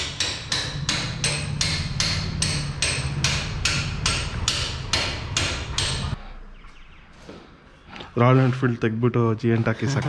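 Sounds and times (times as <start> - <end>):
rapid knocking strikes: 0.0 - 6.2.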